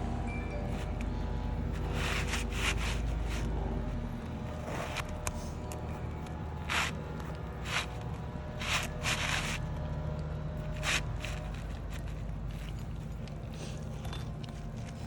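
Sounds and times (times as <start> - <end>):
steady low hum: 0.0 - 15.0
footsteps on shingle roof: 7.6 - 9.6.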